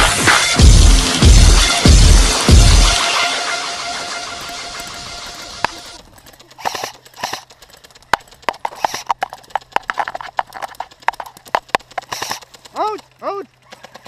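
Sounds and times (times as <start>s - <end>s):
music: 0.0s - 6.0s.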